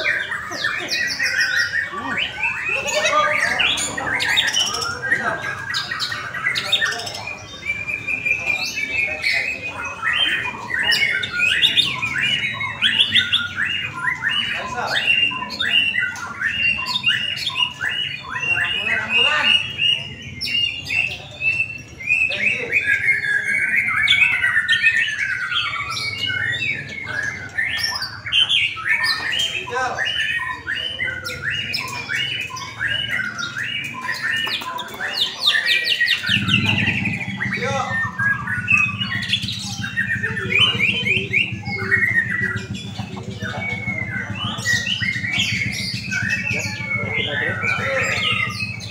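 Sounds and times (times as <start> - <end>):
songbird whistling and chattering: 0.0 - 48.9.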